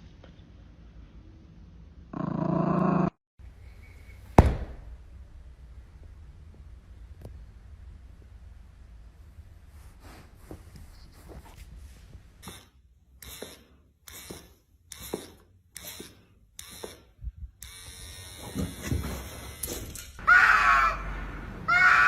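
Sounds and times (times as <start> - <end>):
animal crying loudly: 20.2 - 21.1, 21.7 - 22.0.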